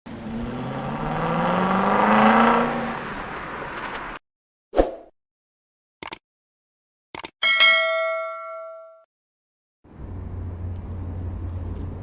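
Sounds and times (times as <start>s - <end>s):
diesel engine revving: 0.1s - 4.2s.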